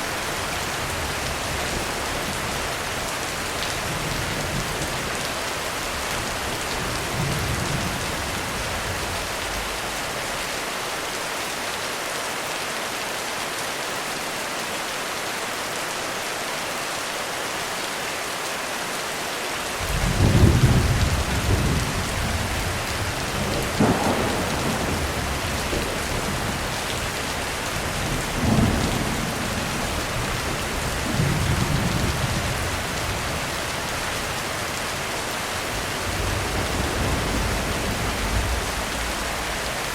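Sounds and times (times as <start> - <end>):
heavy rain on a roof: 0.0 - 39.9
thunder rumbling: 19.8 - 39.9.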